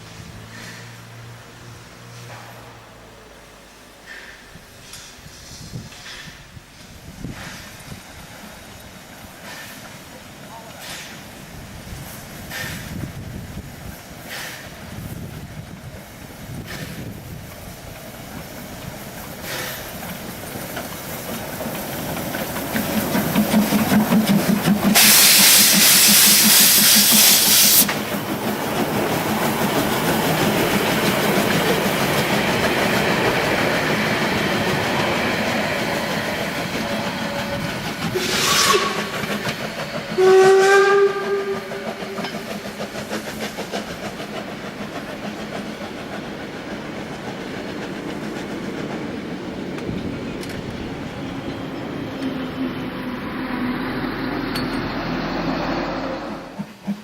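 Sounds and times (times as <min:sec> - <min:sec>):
train running on rails: 0:00.0 - 0:57.0
steam hiss: 0:03.4 - 0:49.1
steam locomotive whistle: 0:24.9 - 0:28.0, 0:36.7 - 0:42.4, 0:55.2 - 0:56.8.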